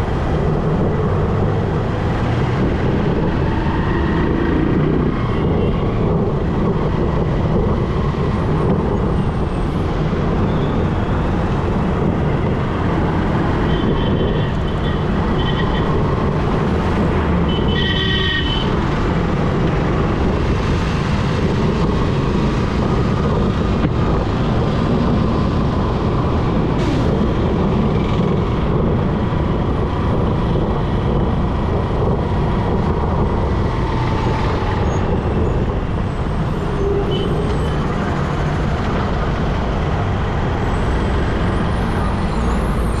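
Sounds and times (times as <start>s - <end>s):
motorbike road noise: 0.0s - 43.0s
vehicles passing: 0.0s - 43.0s
vehicle horn: 17.5s - 18.7s.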